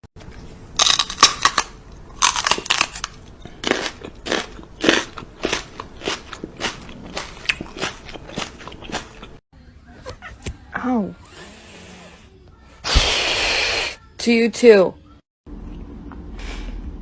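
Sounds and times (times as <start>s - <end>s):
crunching and crackling: 0.2s - 9.4s.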